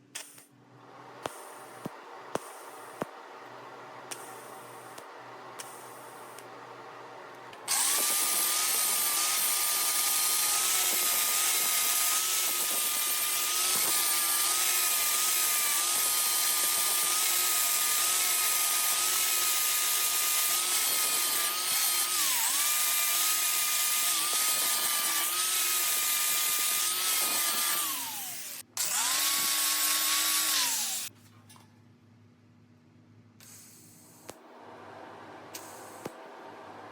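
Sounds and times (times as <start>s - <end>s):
grinder whining on metal: 4.1s - 31.1s.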